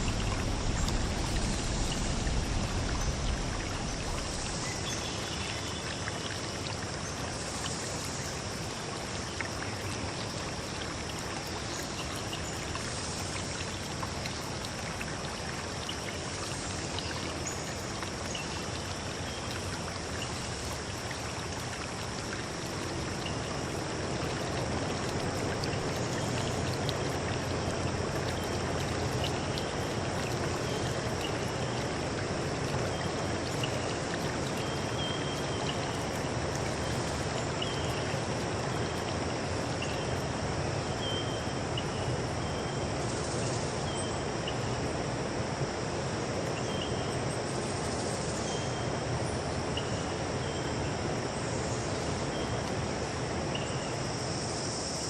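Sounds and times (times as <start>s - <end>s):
short insect chirps: 0.0s - 6.0s
insects trilling: 0.0s - 45.0s
rushing water: 0.0s - 55.0s.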